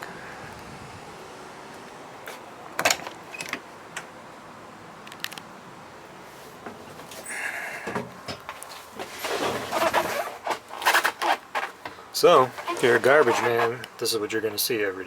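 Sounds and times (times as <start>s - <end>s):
high-pitched rasp: 12.5s - 13.8s.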